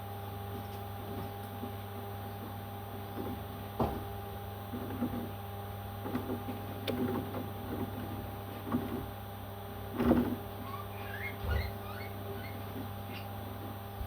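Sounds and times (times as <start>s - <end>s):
electrical hum: 0.0s - 14.0s
parrot calling: 10.6s - 13.3s.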